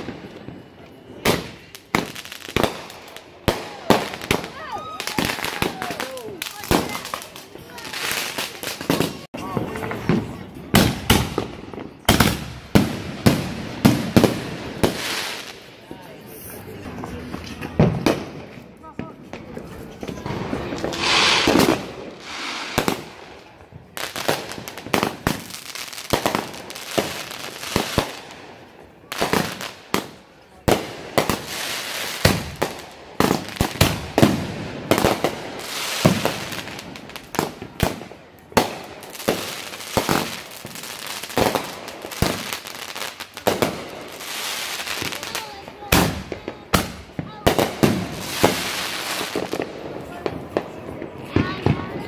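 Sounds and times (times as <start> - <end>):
firework bangs and crackling: 0.0 - 52.0
firework hissing rush: 20.7 - 23.4.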